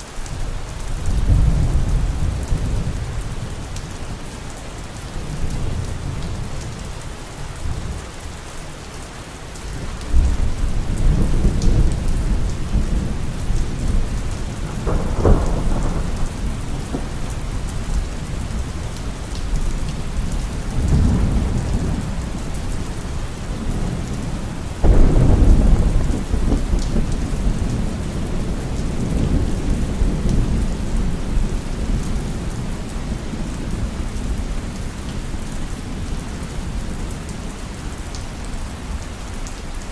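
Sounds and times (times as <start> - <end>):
heavy rain falling: 0.0 - 39.9
rolling thunder: 0.9 - 4.2, 9.9 - 37.3
sharp thunder crack: 11.0 - 17.8, 24.8 - 30.5.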